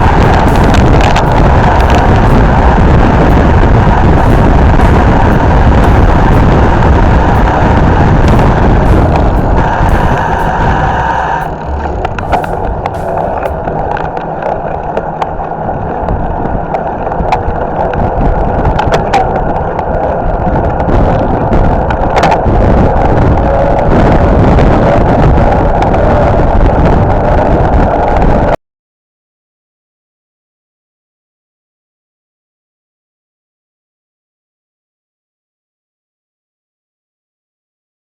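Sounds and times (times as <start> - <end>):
bike tyre noise: 0.0 - 28.2
wind rushing over microphone: 0.0 - 28.6.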